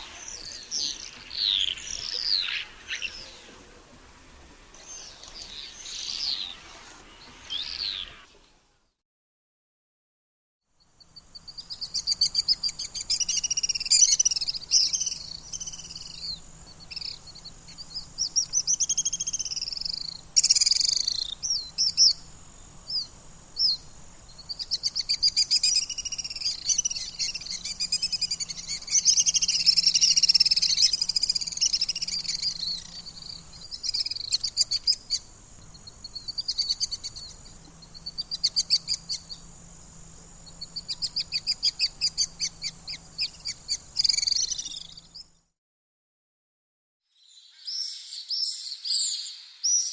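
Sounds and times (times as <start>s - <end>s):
swifts screaming: 0.0s - 3.8s, 4.8s - 8.3s, 24.4s - 39.6s.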